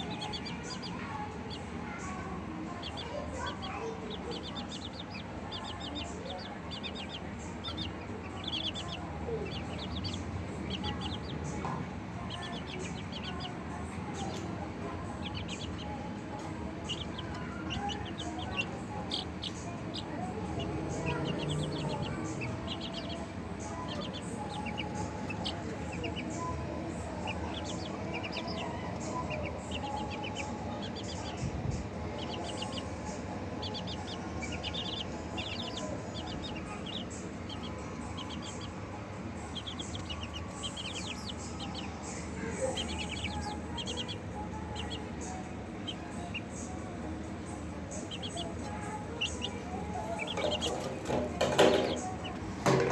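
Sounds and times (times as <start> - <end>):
chickens clucking: 0.0 - 52.9
high rapid chirping: 2.6 - 52.6.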